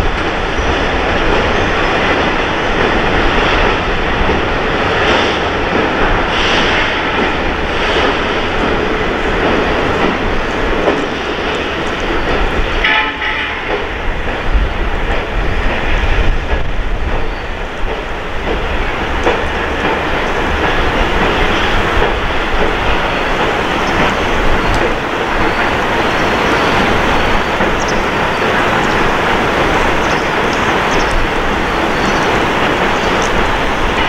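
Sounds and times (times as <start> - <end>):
train wheels rumbling on track: 0.0 - 34.0.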